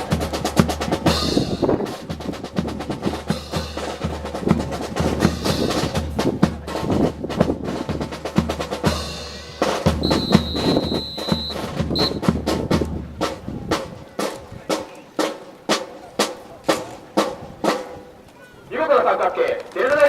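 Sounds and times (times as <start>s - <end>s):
marching snare and bass drums: 0.0s - 18.2s
high steady tone: 10.0s - 12.3s.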